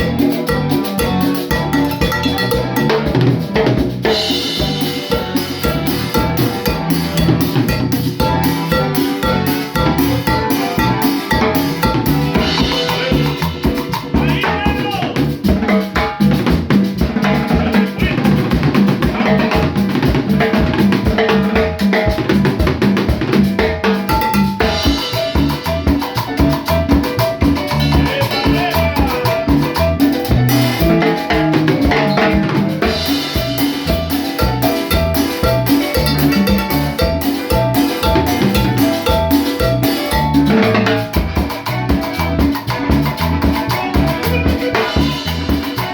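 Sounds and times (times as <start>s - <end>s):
melody lines: 0.0s - 3.4s, 4.1s - 13.3s, 33.2s - 41.4s
drum-kit beat: 0.0s - 45.9s.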